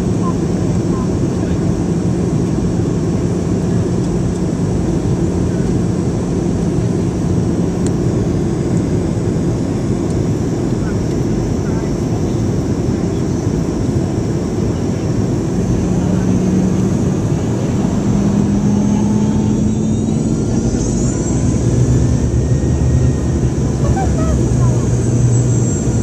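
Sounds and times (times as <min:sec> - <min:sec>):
jet engine cabin rumble: 0:00.0 - 0:26.0
faint rising whine: 0:15.5 - 0:26.0.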